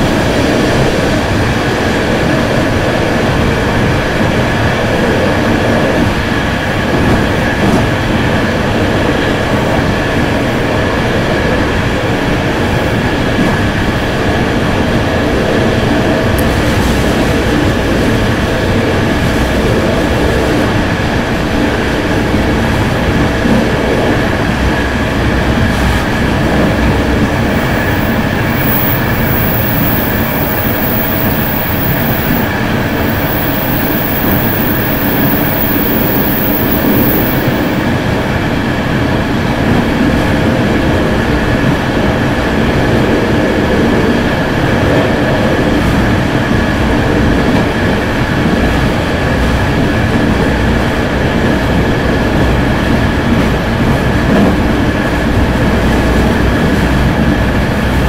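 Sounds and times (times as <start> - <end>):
train wheels rumbling on rails: 0.0 - 58.0
thin steady whine: 24.3 - 38.0.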